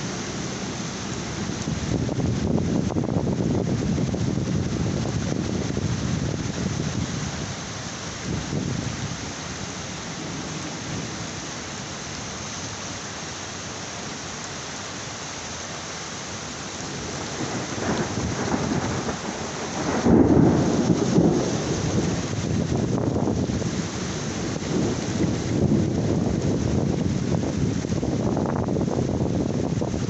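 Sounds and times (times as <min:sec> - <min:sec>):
thunder rumbling: 0:00.0 - 0:07.4, 0:16.8 - 0:30.0
heavy rain falling: 0:00.0 - 0:30.0.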